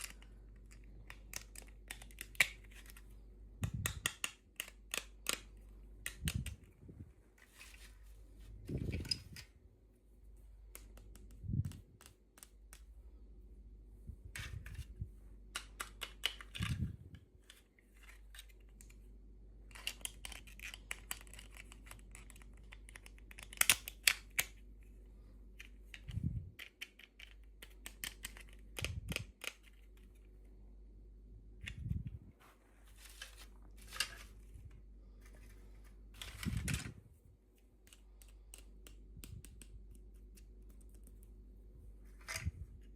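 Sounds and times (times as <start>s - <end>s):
small plastic parts clicking: 0.0s - 6.8s, 15.5s - 19.0s, 19.7s - 24.6s, 25.6s - 30.4s, 37.8s - 41.3s.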